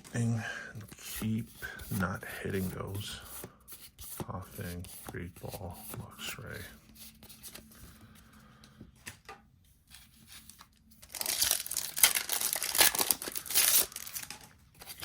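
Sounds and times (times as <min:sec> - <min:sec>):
foil wrapper tearing and crinkling: 0:10.4 - 0:15.0.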